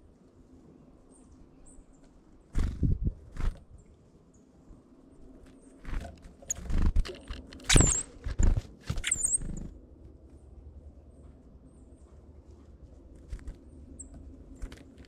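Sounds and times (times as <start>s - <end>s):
short high bird chirps: 9.0s - 9.6s
birds tapping and scuffling: 11.2s - 15.0s.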